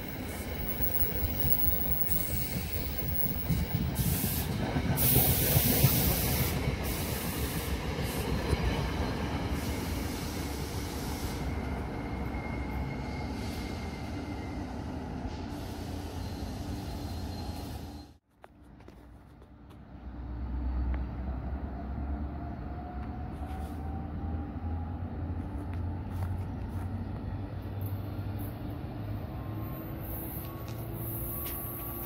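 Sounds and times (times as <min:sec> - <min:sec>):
train wheels clattering on rail: 0:00.0 - 0:10.7.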